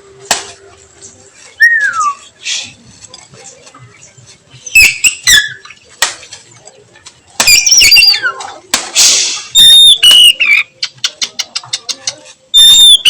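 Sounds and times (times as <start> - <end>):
bird whistling song: 1.6 - 2.2, 4.6 - 5.8, 7.5 - 8.4, 9.5 - 10.9, 12.5 - 13.0.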